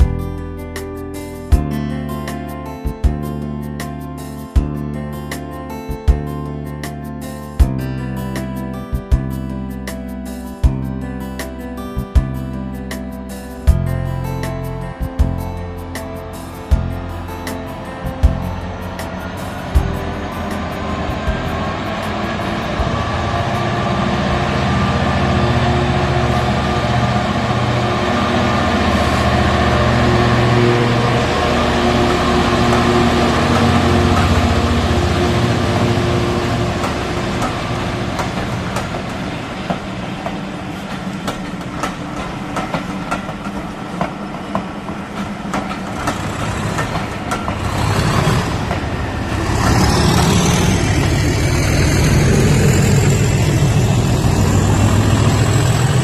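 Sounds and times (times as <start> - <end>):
model diesel locomotive rumble: 13.5 - 56.0.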